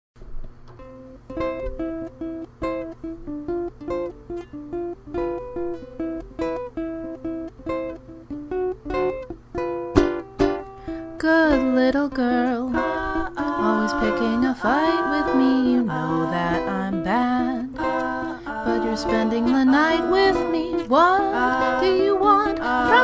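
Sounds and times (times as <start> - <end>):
strum: 0.6 - 23.0
plucked acoustic string instrument: 0.7 - 23.0.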